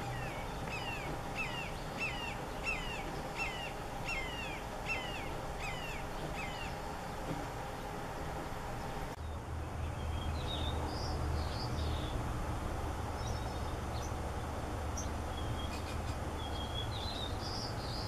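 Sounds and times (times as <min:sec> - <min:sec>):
high bird chirps: 0:00.0 - 0:06.8
low outdoor rumble: 0:00.0 - 0:18.0.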